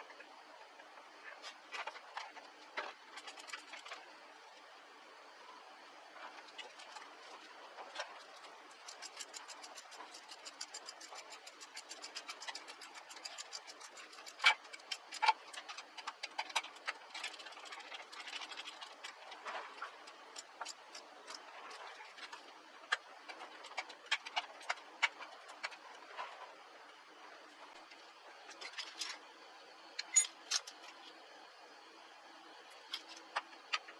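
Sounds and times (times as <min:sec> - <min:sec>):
light mechanical clicks: 0:08.7 - 0:25.8.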